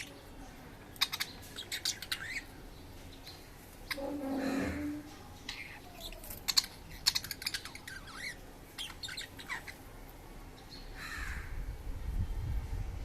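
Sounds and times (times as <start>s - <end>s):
budgies chirping: 0.0s - 9.9s.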